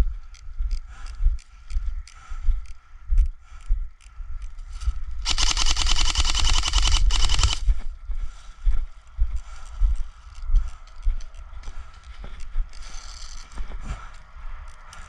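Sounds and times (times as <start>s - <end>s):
airsoft rifle full-auto burst: 5.2s - 7.6s.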